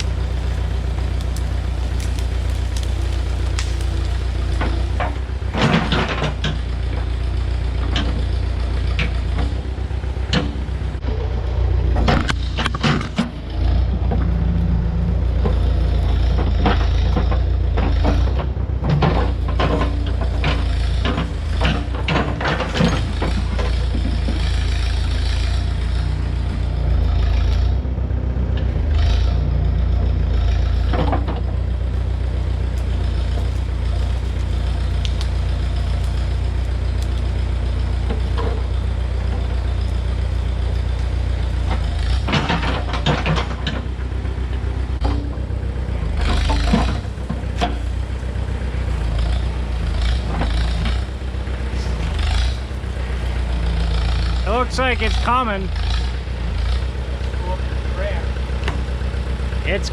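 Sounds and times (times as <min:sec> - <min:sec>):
digging machine engine running: 0:00.0 - 0:59.9
metallic clanks and rattles: 0:15.4 - 0:26.0, 0:30.8 - 0:56.9.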